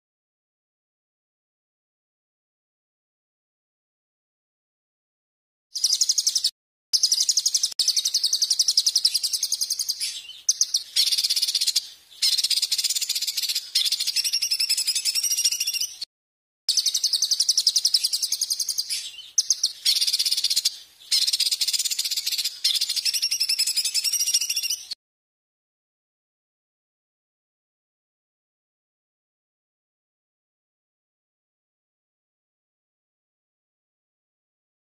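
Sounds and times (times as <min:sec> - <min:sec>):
songbird singing fast trills: 0:05.8 - 0:16.1, 0:16.7 - 0:25.0.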